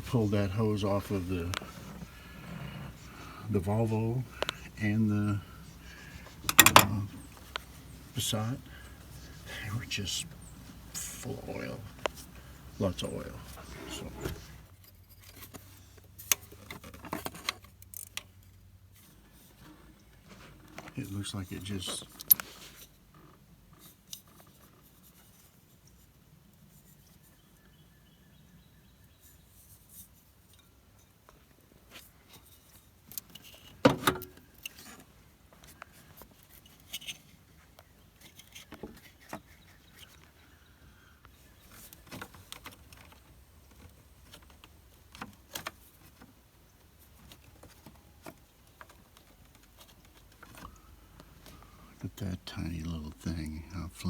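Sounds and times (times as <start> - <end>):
clicks and clinks of metal parts: 6.2 - 7.7, 22.0 - 22.5.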